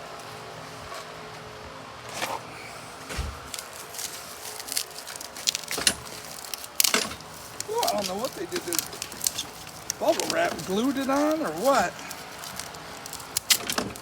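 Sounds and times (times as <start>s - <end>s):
handling knocks: 3.1s - 14.0s
bubble wrap crinkling: 3.4s - 14.0s.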